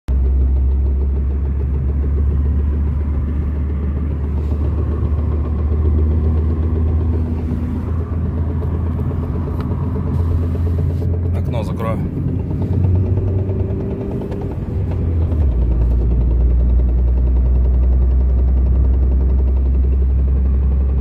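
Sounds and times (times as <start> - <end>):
drivetrain knock: 0.1 - 10.1
car engine and road rumble: 0.1 - 21.0.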